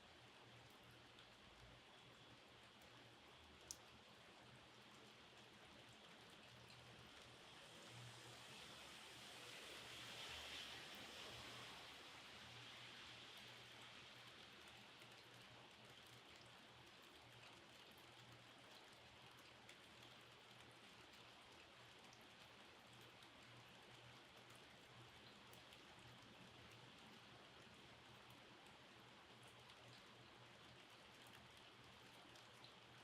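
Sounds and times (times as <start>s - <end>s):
rain hiss: 0.1s - 33.0s
raindrops ticking: 0.2s - 7.6s, 13.2s - 33.0s.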